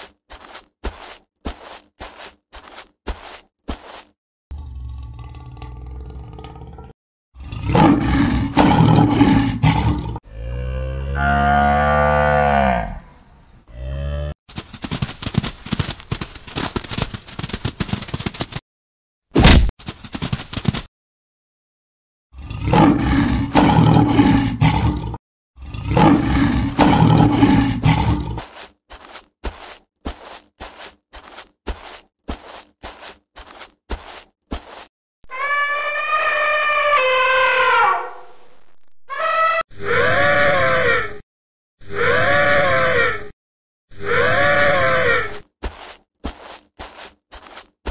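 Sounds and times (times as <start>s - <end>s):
quick footfalls: 0.0s - 4.2s, 14.5s - 18.6s, 26.2s - 34.9s, 44.2s - 47.9s
lion roaring: 4.5s - 12.3s, 22.4s - 28.4s
cow mooing: 10.2s - 13.1s, 13.7s - 14.4s.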